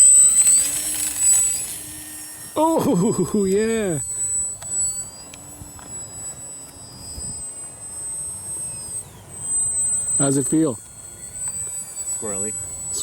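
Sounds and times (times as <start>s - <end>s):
wind noise: 0.0s - 10.2s
model plane motor whining: 0.0s - 13.0s.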